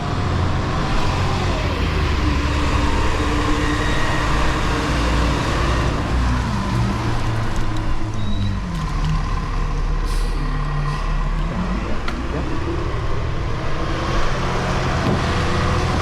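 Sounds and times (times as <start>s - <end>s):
road noise: 0.0s - 16.0s
truck diesel engine revving: 0.0s - 16.0s.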